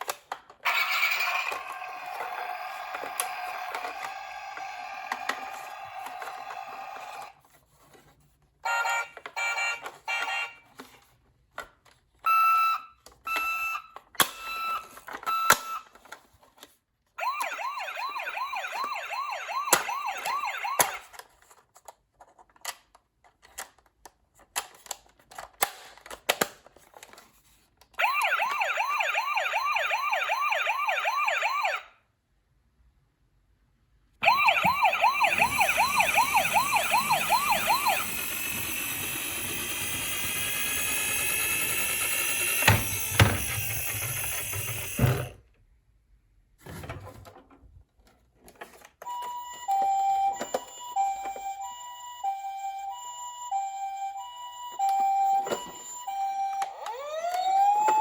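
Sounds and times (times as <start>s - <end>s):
toy siren warbling wail: 0.6s - 7.3s, 17.2s - 21.1s, 28.0s - 31.9s, 34.2s - 45.3s, 49.1s - 58.0s.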